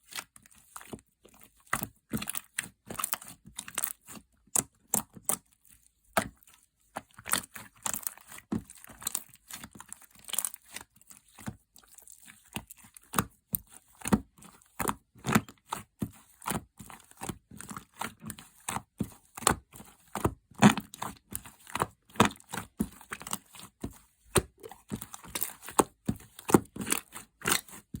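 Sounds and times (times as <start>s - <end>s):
slime squished by hand: 24.3s - 26.0s.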